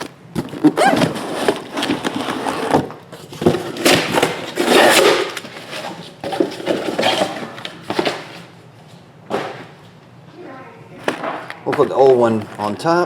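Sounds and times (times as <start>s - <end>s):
cardboard boxes rustling and knocking: 0.0s - 8.5s.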